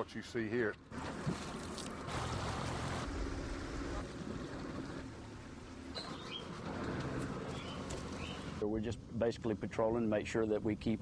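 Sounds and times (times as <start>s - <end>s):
wind: 0.0s - 11.0s
motorboat engine hum: 0.7s - 9.2s
water rushing: 0.9s - 8.6s.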